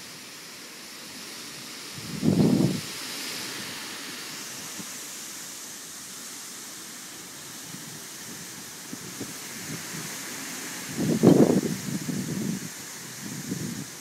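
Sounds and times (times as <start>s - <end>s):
wind buffeting microphone: 1.9s - 3.0s, 7.7s - 14.0s
strong wind rushing: 2.0s - 3.0s, 10.8s - 14.0s.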